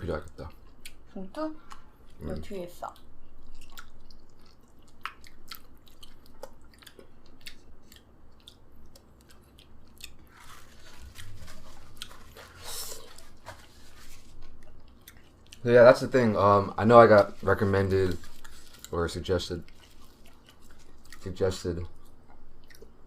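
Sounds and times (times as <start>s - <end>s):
chewing food: 0.2s - 16.2s, 16.9s - 23.0s
scratchy rustling: 10.3s - 14.5s, 16.9s - 19.0s.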